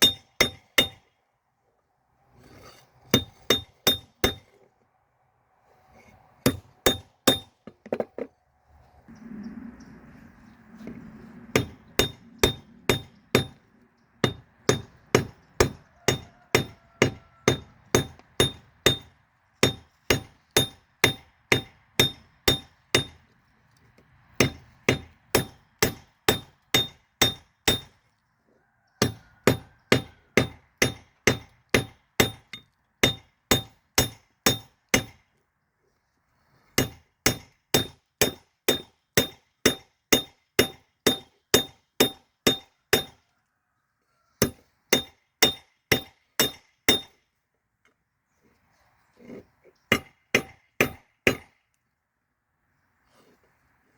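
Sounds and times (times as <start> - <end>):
hammer striking steel on anvil: 0.0 - 1.0, 3.2 - 4.5, 6.4 - 7.6, 11.5 - 13.6, 14.2 - 23.2, 24.4 - 28.0, 29.0 - 35.2, 36.8 - 43.2, 44.4 - 47.2, 49.9 - 51.6.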